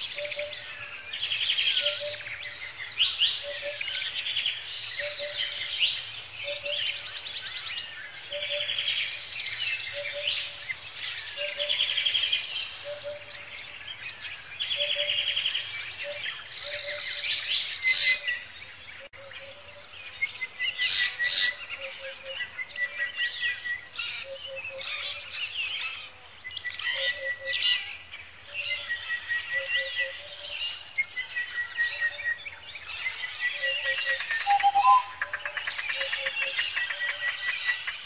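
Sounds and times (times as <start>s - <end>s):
sharp bird calls: 0.0s - 38.0s
wild birds singing and calling: 0.0s - 38.0s.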